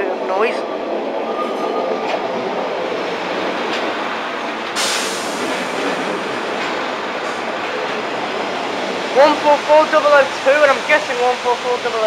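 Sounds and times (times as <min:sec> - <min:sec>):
diesel train rumbling: 0:00.0 - 0:12.0
sudden hiss: 0:04.7 - 0:06.3.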